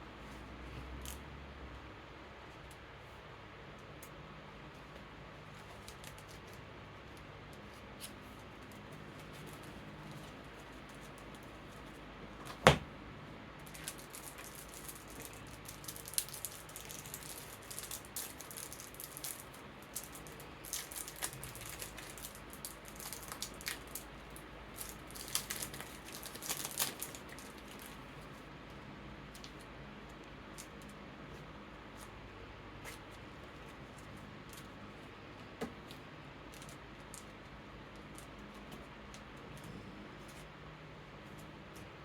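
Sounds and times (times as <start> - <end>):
electric fan hiss: 0.0 - 42.0
cards rustling into plastic sleeves: 4.8 - 12.7, 13.6 - 35.1.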